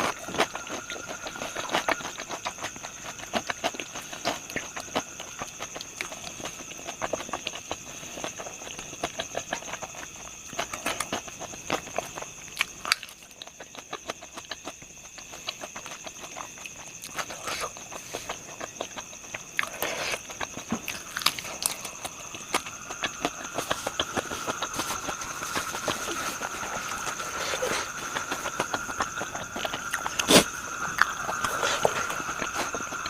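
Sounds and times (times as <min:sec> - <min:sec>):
crunchy chewing: 0:00.0 - 0:33.0.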